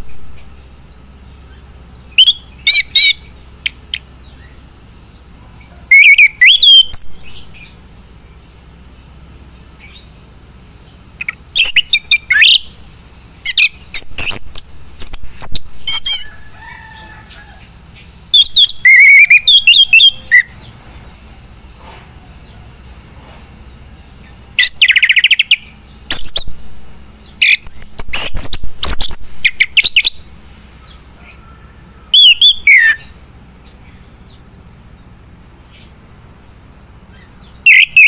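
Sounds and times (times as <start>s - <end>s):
thrush singing: 17.2s - 21.6s.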